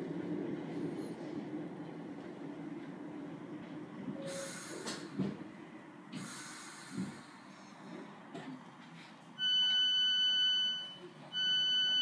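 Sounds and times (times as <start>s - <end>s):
train running rumble: 0.0s - 8.6s
train clunks: 0.0s - 9.0s.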